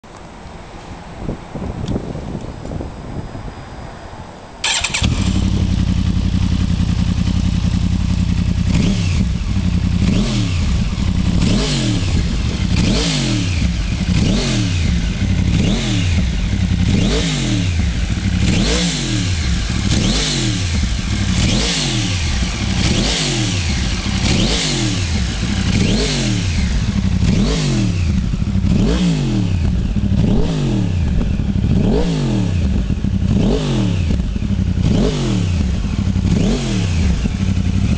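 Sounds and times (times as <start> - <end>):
engine throttle blips: 4.6 - 37.9
motorcycle engine idling: 4.6 - 37.9.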